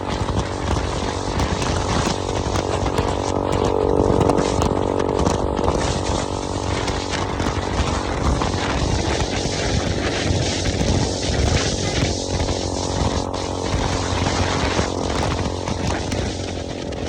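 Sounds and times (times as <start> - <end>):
motorcycle engine running: 0.0 - 17.0
wind rumble on microphone: 0.0 - 17.0.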